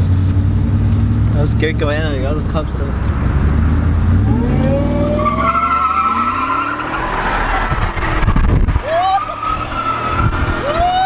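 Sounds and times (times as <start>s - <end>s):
truck engine revving: 0.0s - 11.0s
tires squealing on pavement: 2.3s - 11.0s.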